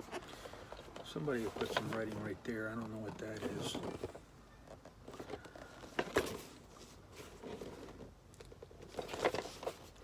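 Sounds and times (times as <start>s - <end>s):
light scraping: 0.0s - 4.3s
plastic package rustling: 0.0s - 10.0s.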